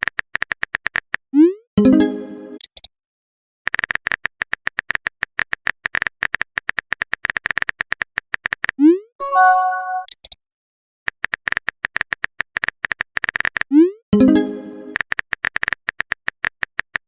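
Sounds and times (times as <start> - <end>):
short chime: 9.2 - 10.1.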